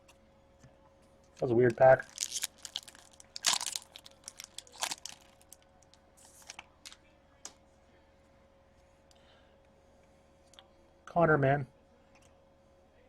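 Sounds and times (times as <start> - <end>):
card pack wrapper crinkling: 1.8 - 5.6, 6.2 - 7.0.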